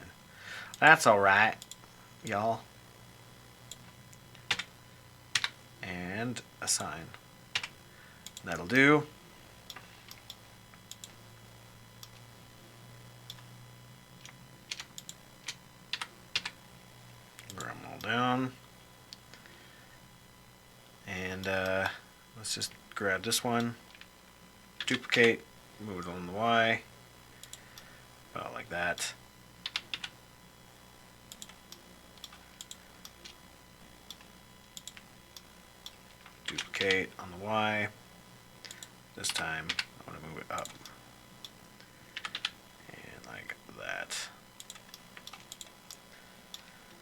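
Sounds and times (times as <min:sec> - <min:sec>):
faint low hum: 0:00.0 - 0:47.0
keyboard and mouse clicking: 0:34.1 - 0:35.1, 0:44.6 - 0:46.0.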